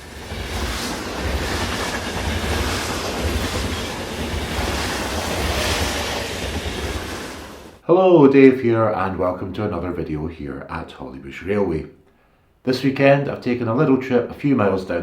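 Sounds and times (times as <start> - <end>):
train rumbling on rails: 0.0 - 7.8
wheel noise on track: 0.0 - 7.8.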